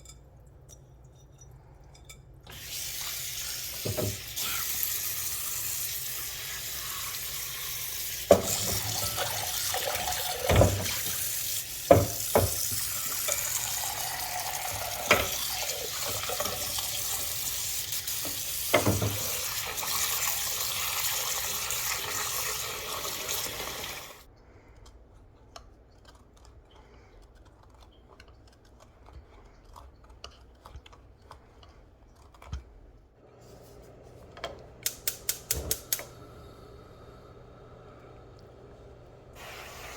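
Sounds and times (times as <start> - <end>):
tap running into sink: 3.7 - 4.3, 8.3 - 13.5, 14.6 - 16.9, 18.1 - 19.6.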